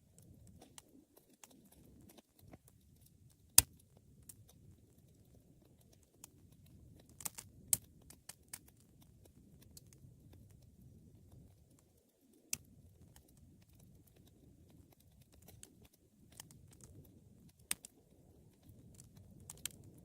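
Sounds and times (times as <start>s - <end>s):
soft rustle of flames: 0.0s - 20.0s
wood fire crackling and popping: 0.0s - 20.0s.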